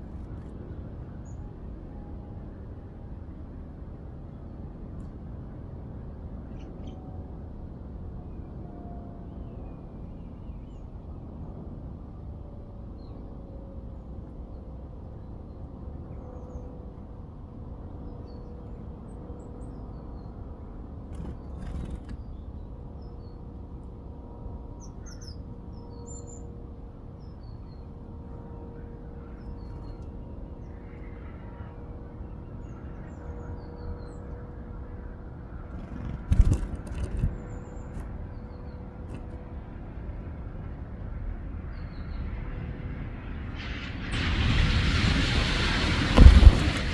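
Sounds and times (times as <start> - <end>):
small birds chirping: 35.7 - 39.4
low rumble: 44.0 - 46.9.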